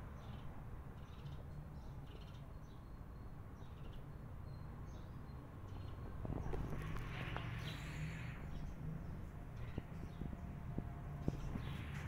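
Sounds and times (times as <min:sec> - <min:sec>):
low steady rumble: 0:06.2 - 0:12.0.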